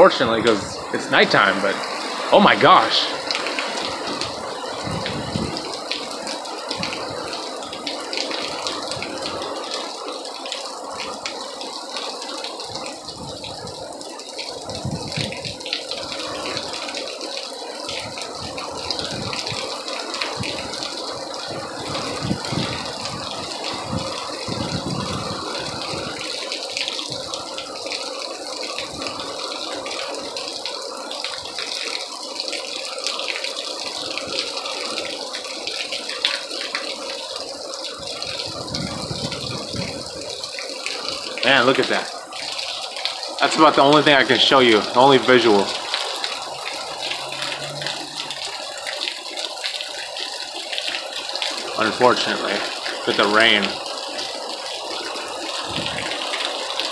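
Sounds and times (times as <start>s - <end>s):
heavy rain: 0.0s - 56.9s
wind gusts buffeting microphone: 0.2s - 7.4s, 12.7s - 13.9s, 14.6s - 16.7s, 17.9s - 26.4s, 37.9s - 40.4s, 55.6s - 56.2s.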